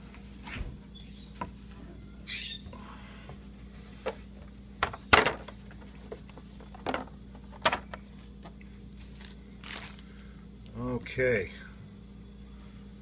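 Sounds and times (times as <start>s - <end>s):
cardboard rustling: 9.0s - 10.0s.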